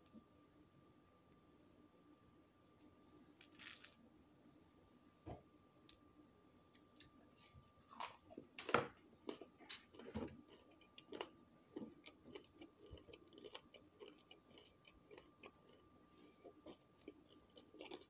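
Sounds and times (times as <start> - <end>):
person chewing food: 7.9 - 18.0.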